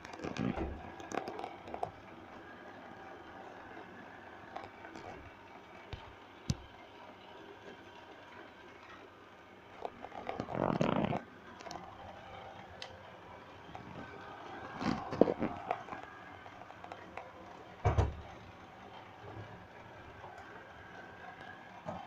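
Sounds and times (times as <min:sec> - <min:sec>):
robot vacuum motor hum: 0:09.8 - 0:18.4.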